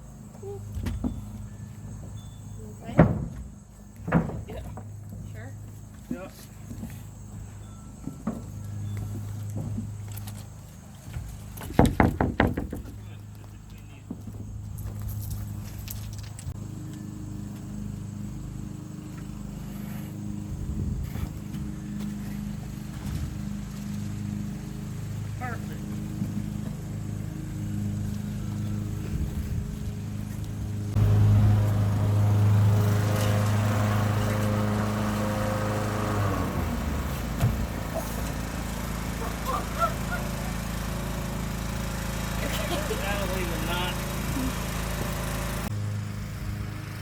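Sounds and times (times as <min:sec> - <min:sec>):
engine running: 0:00.0 - 0:47.0
short knocks: 0:11.1 - 0:13.1.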